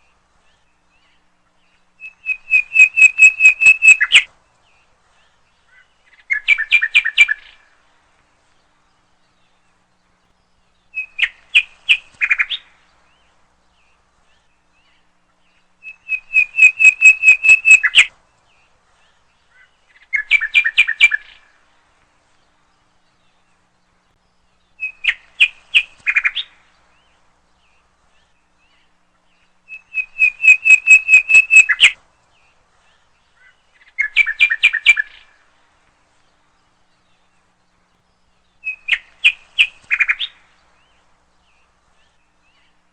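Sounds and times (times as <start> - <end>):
bird singing whistled notes: 0.4 - 4.3, 5.7 - 7.7, 10.4 - 18.1, 19.1 - 21.5, 24.4 - 35.4, 38.2 - 42.7.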